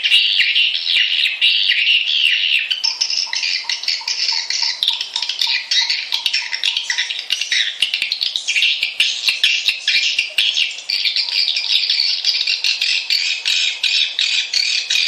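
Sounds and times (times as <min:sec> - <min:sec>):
swiftlet chatter: 0:02.7 - 0:15.0.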